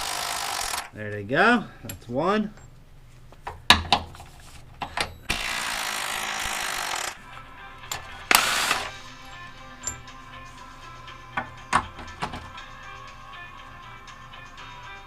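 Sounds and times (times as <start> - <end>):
impact wrench running: 0.0 - 0.9, 5.3 - 7.2, 7.8 - 10.0
metal tool clinks: 9.2 - 10.2.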